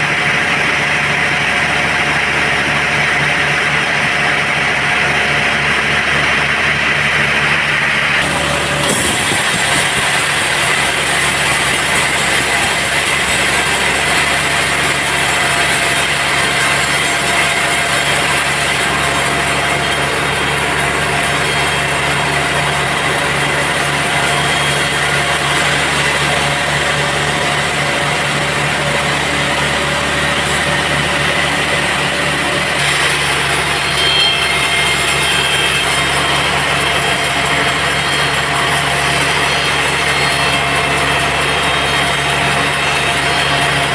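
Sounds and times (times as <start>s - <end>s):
sawmill machinery humming: 0.0s - 43.9s.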